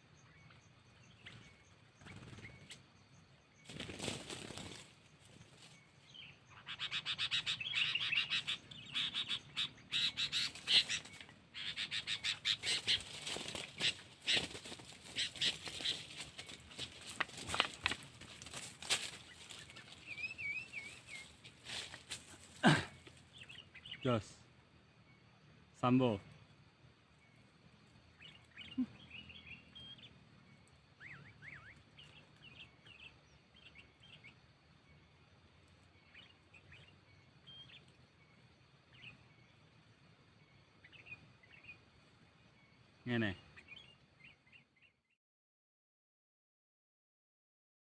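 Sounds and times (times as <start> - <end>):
bird calling: 3.6 - 26.5, 27.1 - 39.8, 40.4 - 45.0
bulbul chattering call: 6.1 - 13.2.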